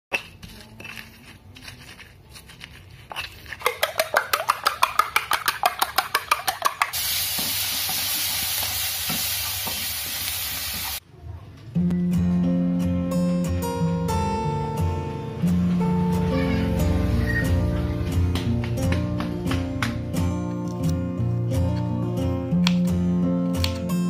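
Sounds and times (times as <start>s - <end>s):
food sizzling in a pan: 6.9s - 11.0s
acoustic guitar music: 11.7s - 24.0s.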